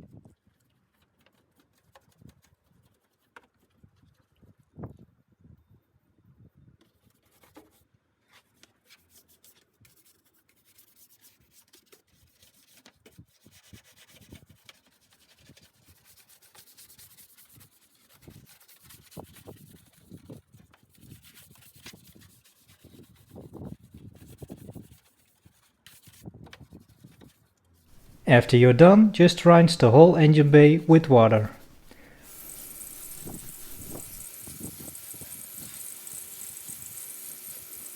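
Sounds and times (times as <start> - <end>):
brush scrubbing wet parts: 28.0 - 37.9.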